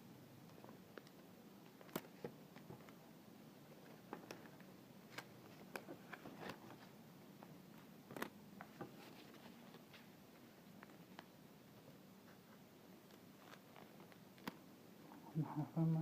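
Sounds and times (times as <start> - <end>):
tape clicking and paper crinkling: 0.6 - 3.0, 3.8 - 6.9, 7.8 - 10.1, 13.0 - 14.7.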